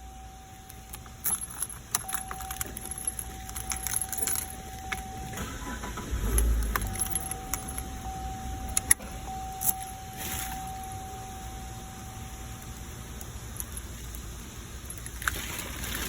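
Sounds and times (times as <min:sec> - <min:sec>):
steady high tone: 0:00.0 - 0:13.9
car key jingling in ignition: 0:00.5 - 0:11.5.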